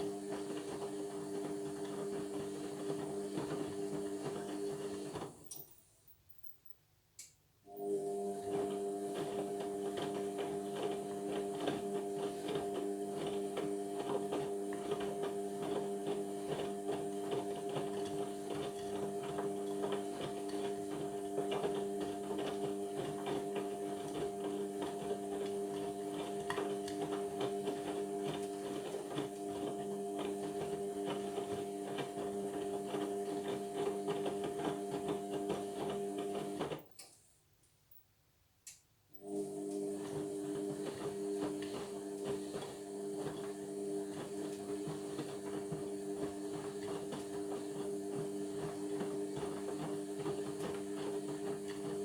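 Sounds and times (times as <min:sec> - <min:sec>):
washing machine motor humming: 0:00.0 - 0:05.4, 0:07.7 - 0:36.8, 0:39.2 - 0:52.0.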